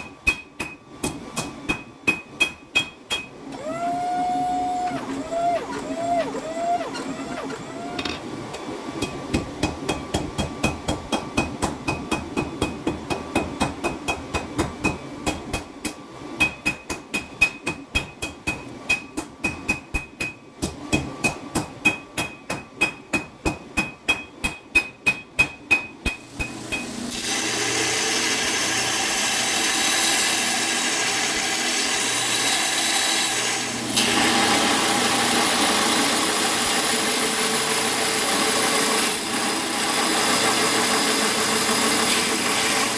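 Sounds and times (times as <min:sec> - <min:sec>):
loud machine noise: 0:03.5 - 0:08.7.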